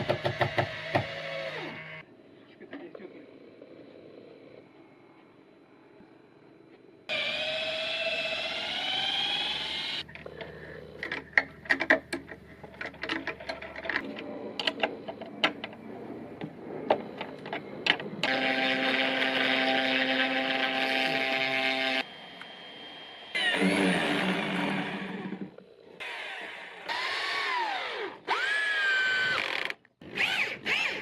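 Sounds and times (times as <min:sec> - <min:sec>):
machine hum: 0:07.1 - 0:28.4.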